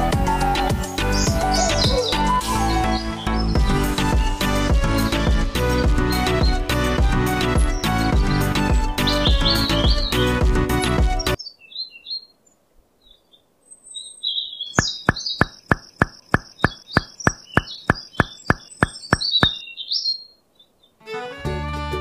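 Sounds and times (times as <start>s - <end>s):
background music: 0.0s - 11.4s, 21.0s - 22.0s
bird chirps: 1.0s - 3.6s, 7.6s - 10.3s, 11.2s - 21.0s.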